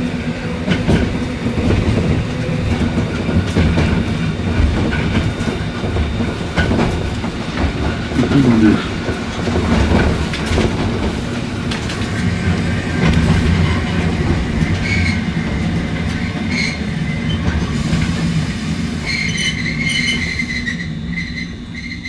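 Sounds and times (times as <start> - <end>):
tram rumbling: 0.0 - 22.0
tram wheels squealing: 0.0 - 22.0.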